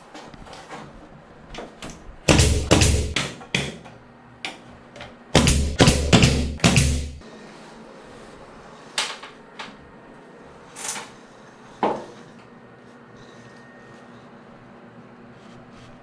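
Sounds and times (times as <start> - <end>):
loud knocks and clatter: 2.3 - 3.8, 5.4 - 7.2.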